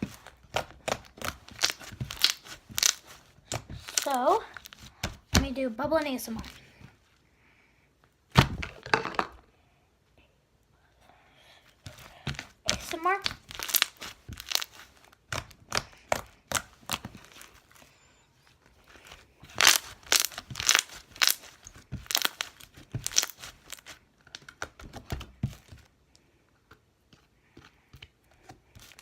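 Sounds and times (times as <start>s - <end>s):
slime squished by hand: 0.0s - 5.2s, 12.3s - 17.6s, 19.5s - 24.0s.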